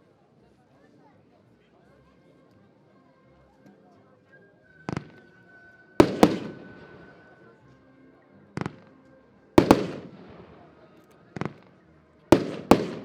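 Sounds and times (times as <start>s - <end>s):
firework bursting crack: 4.9s - 5.2s, 6.0s - 7.2s, 8.6s - 8.9s, 9.6s - 10.7s, 12.4s - 13.0s.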